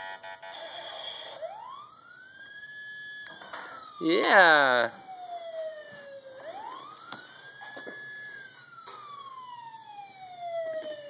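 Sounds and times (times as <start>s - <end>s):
toy electronic siren wailing: 0.0s - 11.0s.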